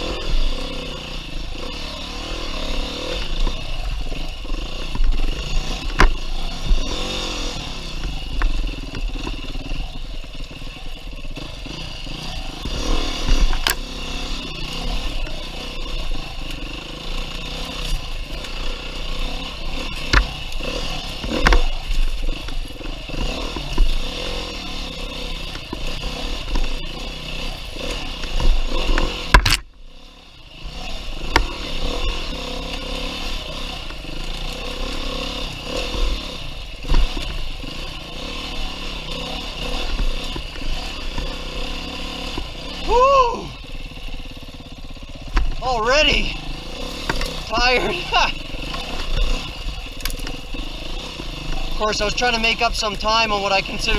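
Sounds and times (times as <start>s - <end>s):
dirt bike engine revving: 0.0s - 53.9s
bike clattering over rough ground: 35.4s - 38.1s, 45.2s - 53.9s.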